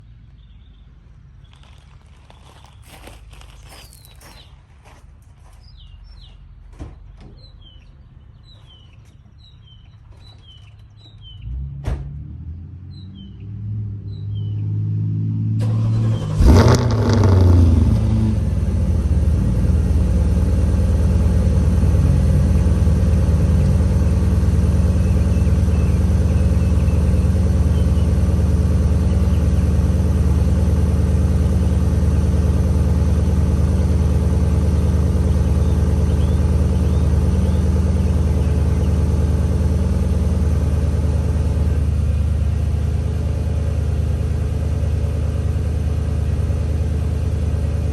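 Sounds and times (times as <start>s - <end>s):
birds chirping: 0.0s - 11.7s, 12.5s - 14.8s, 22.4s - 29.7s, 34.6s - 39.6s
car engine idling: 15.6s - 47.9s.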